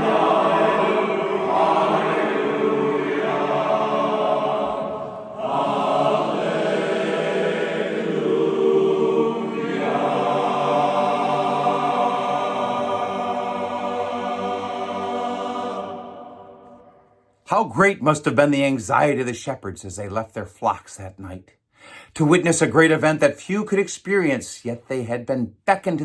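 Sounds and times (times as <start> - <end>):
barbershop chorus singing a cappella: 0.0 - 17.0.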